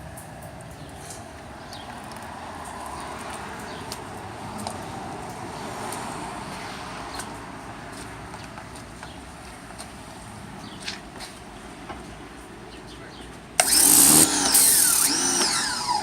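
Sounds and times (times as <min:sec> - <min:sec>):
pressure washer water jet hissing: 0:13.6 - 0:16.0.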